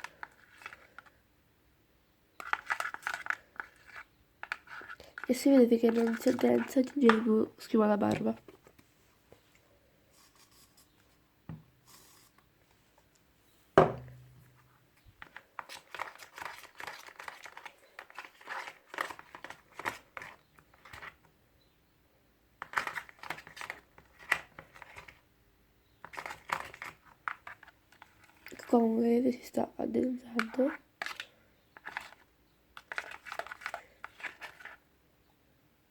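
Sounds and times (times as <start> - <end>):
sharp knock: 13.8 - 14.2.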